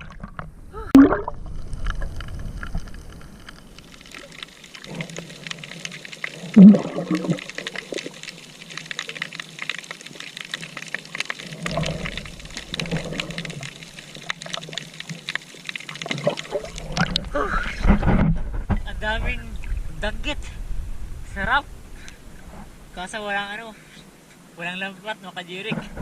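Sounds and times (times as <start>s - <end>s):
sea water gurgling and sloshing: 0.0s - 24.6s, 25.6s - 26.0s
fine steady crackle: 0.0s - 26.0s
muffled low surges: 17.2s - 23.2s.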